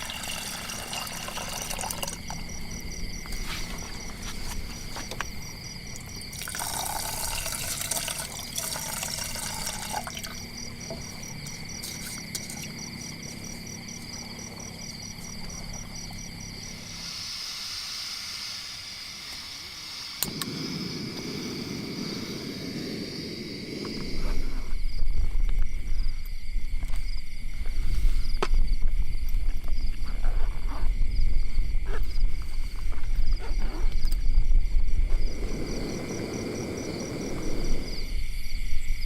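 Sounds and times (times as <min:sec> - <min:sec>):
water trickling and pouring: 0:00.0 - 0:02.6, 0:06.3 - 0:10.5.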